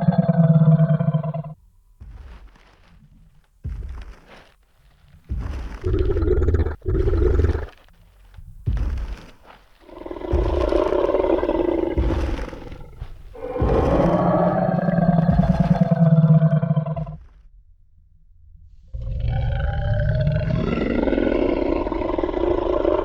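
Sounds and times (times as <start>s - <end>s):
dinosaur roars: 0.0s - 1.6s, 5.8s - 7.8s, 9.8s - 17.3s, 18.9s - 23.0s.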